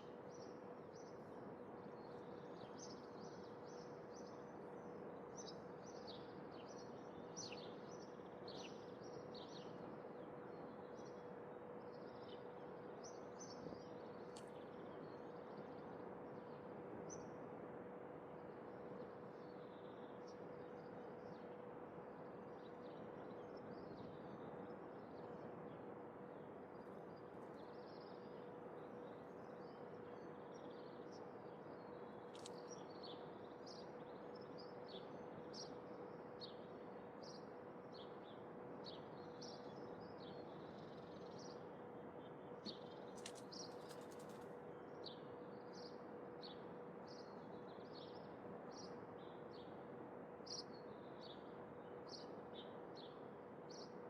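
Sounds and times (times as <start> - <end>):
small birds chirping: 32.2 - 35.7, 42.6 - 45.2.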